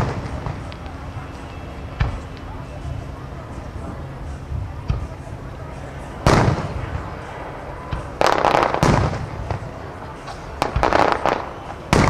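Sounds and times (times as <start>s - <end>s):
firework booms: 0.0s - 0.7s, 6.2s - 7.2s, 7.9s - 9.8s, 10.6s - 12.0s
firework crackling burst: 0.0s - 1.4s, 6.2s - 12.0s.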